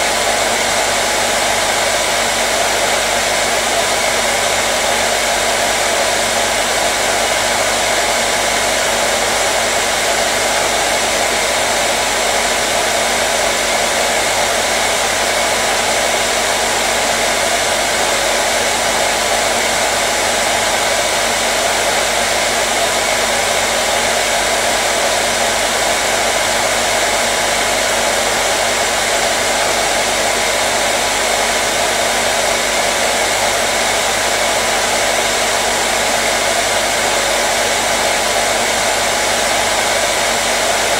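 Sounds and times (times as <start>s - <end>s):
hair dryer blowing air: 0.0s - 40.9s.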